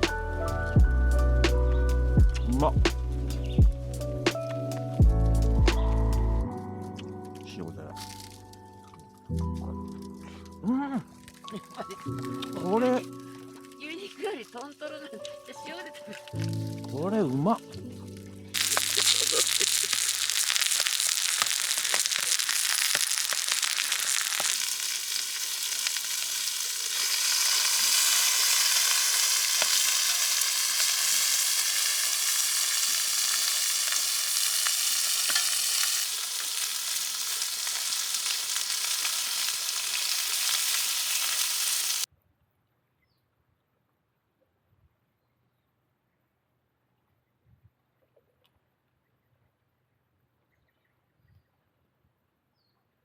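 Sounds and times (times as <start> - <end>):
meat sizzling in a pan: 18.6 - 42.1.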